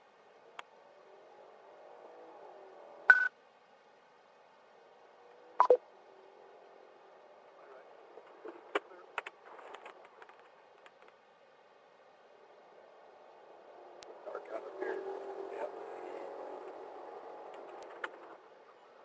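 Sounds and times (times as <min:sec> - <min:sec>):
low radio hiss: 0:00.0 - 0:19.0
electronic beep: 0:03.1 - 0:03.3, 0:05.6 - 0:05.8.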